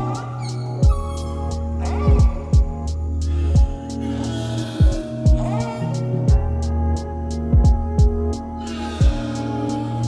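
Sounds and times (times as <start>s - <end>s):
deep kick drum: 0.0s - 0.2s, 0.8s - 4.0s, 4.8s - 5.7s, 6.3s - 9.4s
held synth chords: 0.0s - 10.0s
hi-hat ticks: 0.0s - 10.0s.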